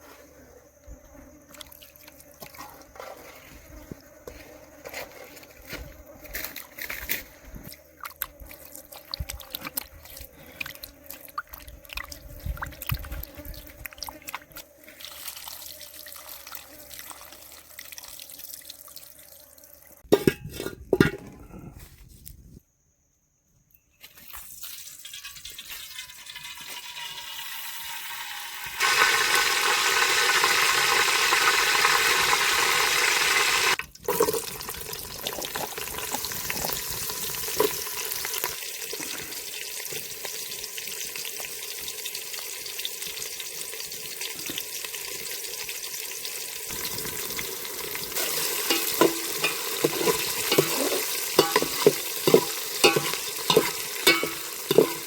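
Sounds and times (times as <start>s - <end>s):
spoon scraping and knocking pan: 20.1s - 21.4s, 48.2s - 55.0s
food sizzling in hot oil: 24.4s - 55.0s.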